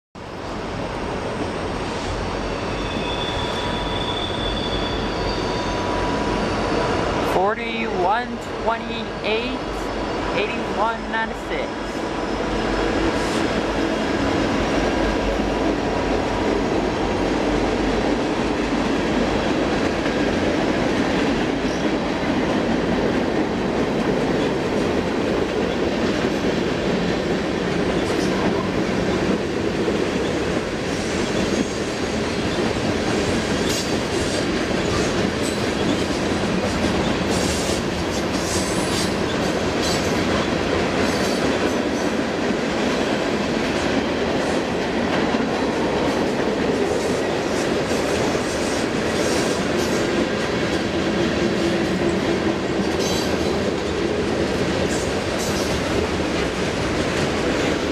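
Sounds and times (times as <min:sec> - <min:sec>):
wheel squeals: 0:02.4 - 0:07.0
train wheels rumbling on rails: 0:11.5 - 0:57.9.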